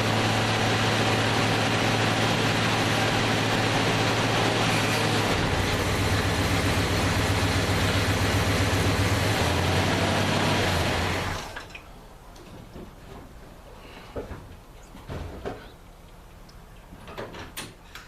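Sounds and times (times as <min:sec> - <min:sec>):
car engine running: 0:00.0 - 0:11.6.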